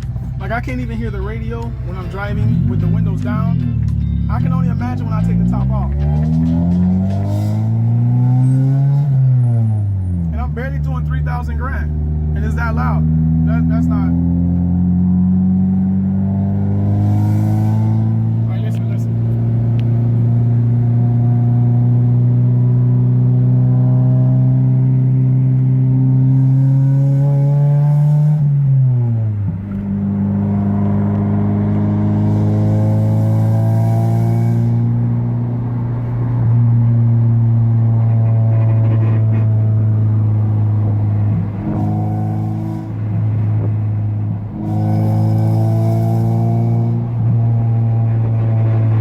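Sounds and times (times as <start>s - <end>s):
loud car engine droning: 0.0s - 49.0s
man talking: 0.3s - 6.1s, 10.3s - 14.2s, 18.4s - 19.1s.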